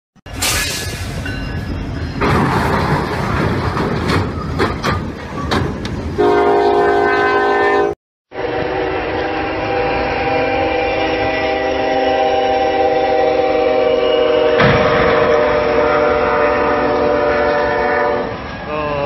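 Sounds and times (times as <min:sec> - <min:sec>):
train horn blaring: 0:06.2 - 0:18.7.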